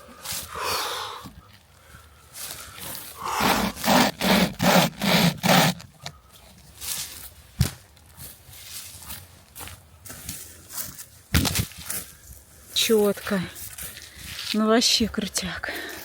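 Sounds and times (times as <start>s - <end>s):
hand saw cutting log: 3.2s - 5.9s.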